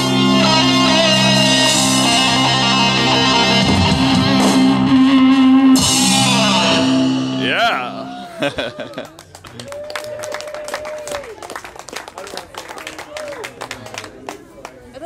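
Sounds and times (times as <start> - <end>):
live rock band playing: 0.0 - 8.2.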